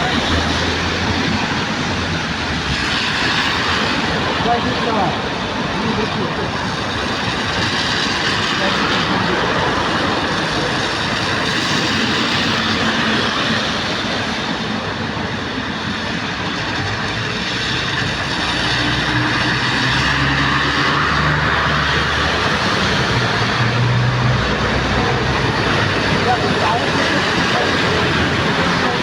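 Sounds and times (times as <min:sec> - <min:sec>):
vehicle engine hum: 0:00.0 - 0:14.9, 0:15.9 - 0:29.0
heavy rain: 0:00.0 - 0:29.0.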